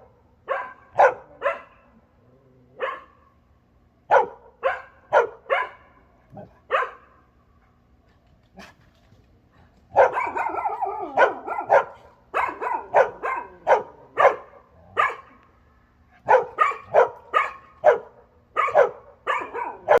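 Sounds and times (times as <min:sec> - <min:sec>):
dog barking: 0:00.4 - 0:01.9, 0:02.8 - 0:03.2, 0:04.1 - 0:06.0, 0:06.7 - 0:07.2, 0:09.9 - 0:15.4, 0:16.2 - 0:20.0.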